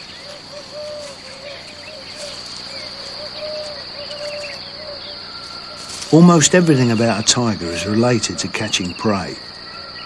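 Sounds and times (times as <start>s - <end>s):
faint bird chirps: 0.0s - 10.0s
high-pitched insect drone: 0.0s - 10.0s.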